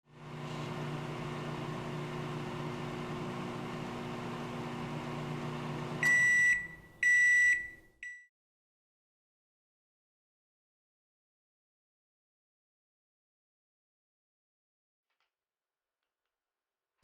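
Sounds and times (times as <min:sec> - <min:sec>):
microwave oven humming: 0:00.1 - 0:07.8
microwave beeps: 0:04.5 - 0:08.3.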